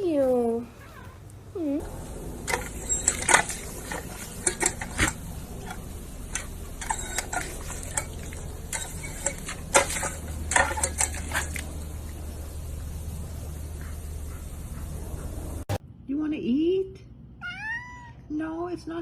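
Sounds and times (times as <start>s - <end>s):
low steady hum: 1.3s - 17.4s
dishes and cutlery clinking: 2.4s - 11.9s.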